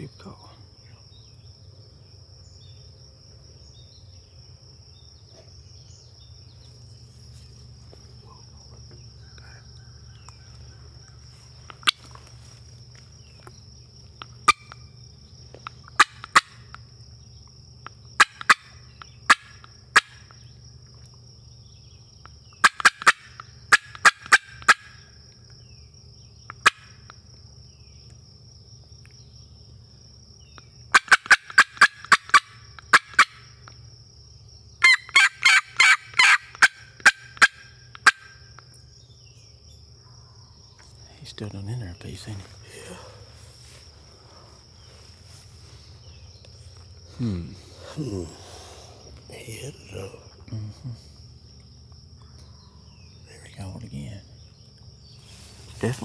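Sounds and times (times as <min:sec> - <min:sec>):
high insect buzz: 0:00.0 - 0:56.0
turkey calling: 0:14.3 - 0:14.9, 0:15.6 - 0:16.8, 0:18.2 - 0:20.2, 0:22.6 - 0:25.1, 0:30.9 - 0:33.4, 0:34.8 - 0:38.7.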